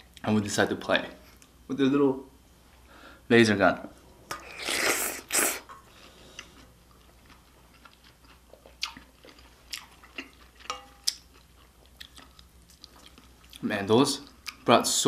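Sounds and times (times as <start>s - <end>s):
loud mouth noises: 4.3s - 5.7s
quiet chewing with wet smacks: 6.0s - 14.7s.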